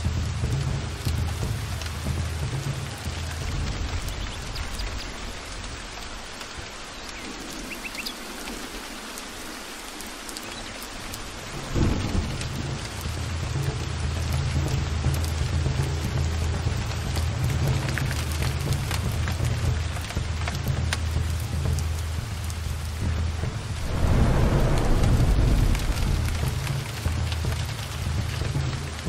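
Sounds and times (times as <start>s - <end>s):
heavy rain: 0.0s - 29.0s
thunder rumbling: 11.2s - 13.5s, 23.1s - 29.0s.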